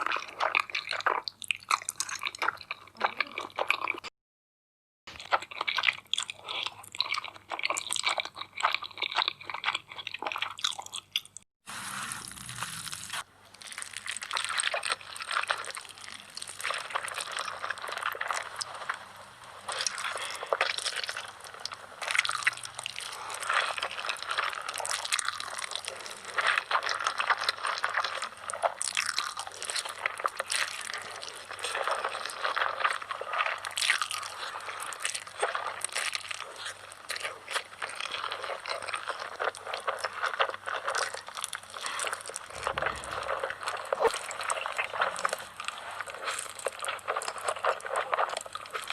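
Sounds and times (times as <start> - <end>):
person slurping and chewing noodles: 0.0 - 4.1, 5.1 - 48.9.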